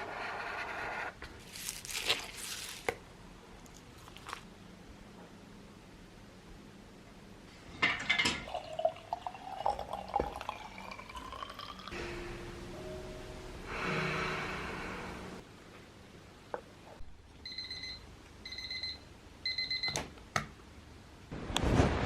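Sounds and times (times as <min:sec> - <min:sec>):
liquid pouring into vessel: 0:08.4 - 0:12.0.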